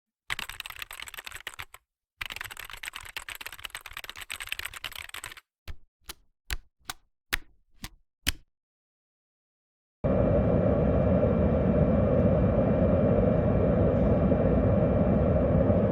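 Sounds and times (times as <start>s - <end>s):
computer keyboard typing: 0.3s - 7.5s.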